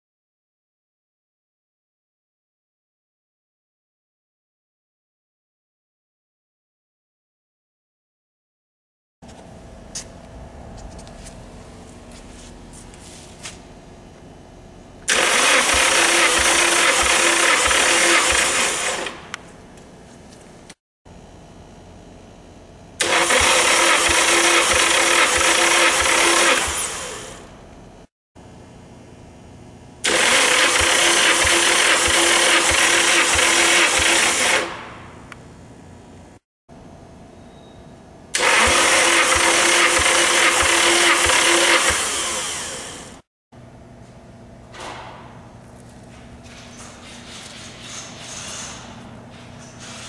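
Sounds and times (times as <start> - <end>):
starter motor cranking engine: 15.0 - 19.2, 23.0 - 27.4, 30.0 - 34.8, 38.4 - 43.0.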